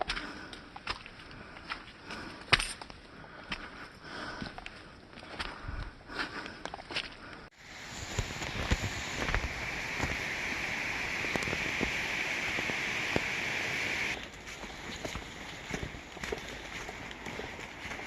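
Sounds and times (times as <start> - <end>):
flowing water rushing: 7.6 - 18.0.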